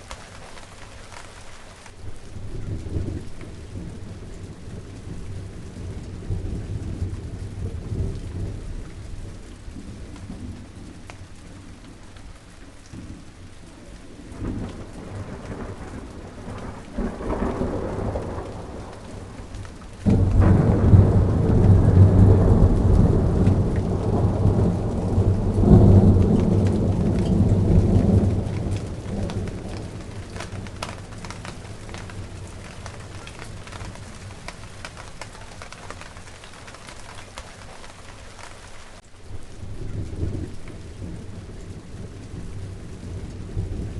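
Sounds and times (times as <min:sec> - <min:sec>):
steady rain: 0:00.0 - 0:43.9
thunder rumbling: 0:00.0 - 0:43.9
loud thunderclap: 0:14.2 - 0:36.9.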